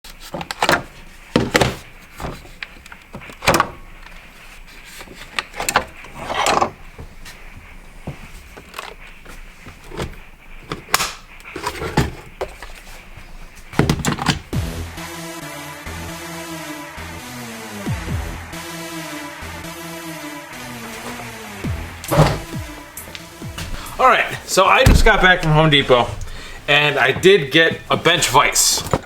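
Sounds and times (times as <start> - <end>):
irregular knocks and bangs: 21.0 - 29.0.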